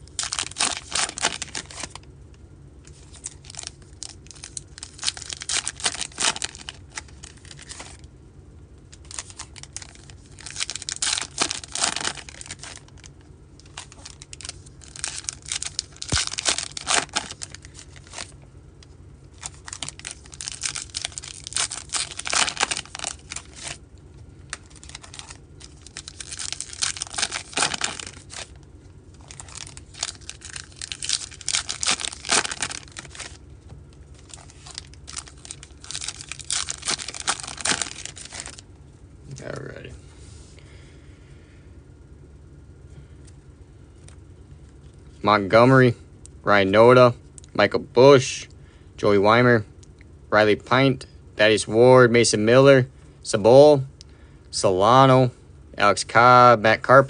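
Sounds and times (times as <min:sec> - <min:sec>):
foil wrappers tearing and crinkling: 0:00.0 - 0:02.0, 0:02.9 - 0:08.0, 0:09.0 - 0:18.4, 0:19.3 - 0:23.8, 0:24.5 - 0:33.4, 0:34.2 - 0:38.6.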